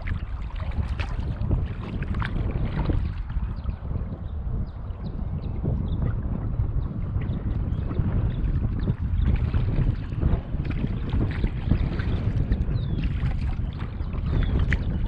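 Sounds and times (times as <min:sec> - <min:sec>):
water splashing and dripping: 0:00.0 - 0:03.9, 0:08.0 - 0:15.0
wind on microphone: 0:00.0 - 0:15.0.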